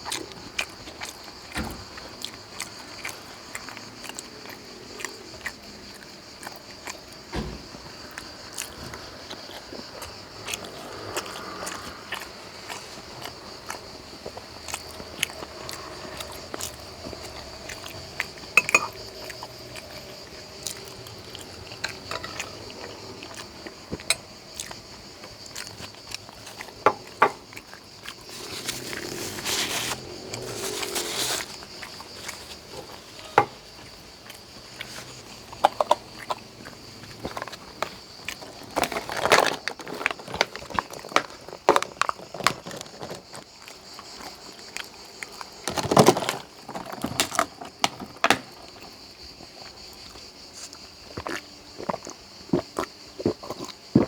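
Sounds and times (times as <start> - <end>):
chewing and mouth noises: 0.0 - 7.3, 7.9 - 33.0, 33.6 - 45.6, 48.6 - 54.0
cutlery clinking on plate: 18.6 - 19.0, 33.2 - 33.6.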